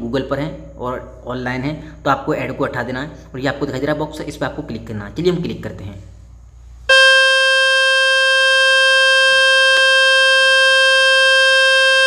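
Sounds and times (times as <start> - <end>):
loud steady buzzing tone: 6.2 - 12.0.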